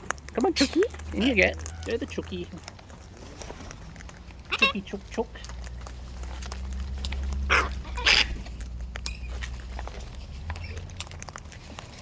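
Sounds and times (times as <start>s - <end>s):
parrot squawks: 4.5s - 4.8s, 7.5s - 8.4s.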